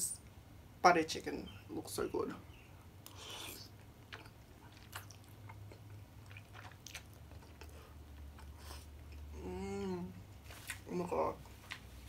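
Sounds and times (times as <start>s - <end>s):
mouth chewing clicks and smacks: 3.0s - 9.3s.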